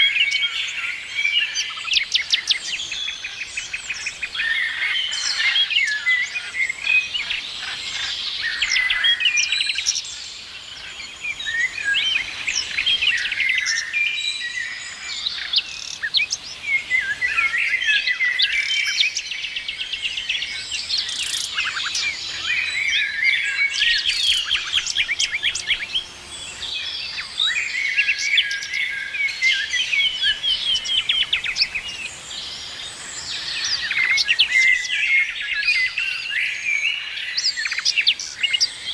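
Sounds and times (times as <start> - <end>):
songbirds chorus singing: 0.0 - 38.9.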